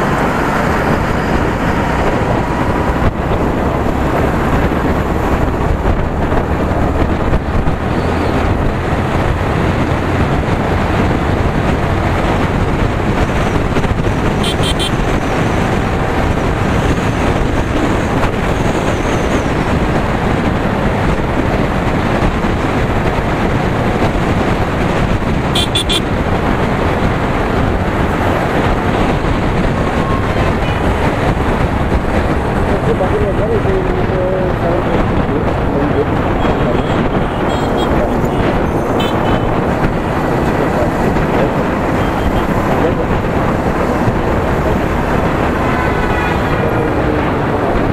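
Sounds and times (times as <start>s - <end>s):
motorcycle engine and wind rush: 0.0s - 47.9s
horn beeps: 14.4s - 15.0s, 25.5s - 26.0s.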